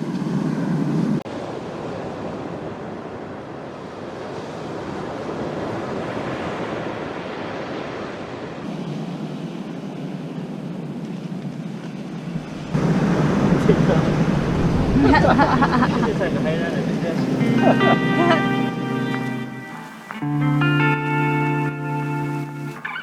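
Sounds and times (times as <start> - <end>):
ocean waves breaking: 0.0 - 23.0
low drone: 12.4 - 23.0.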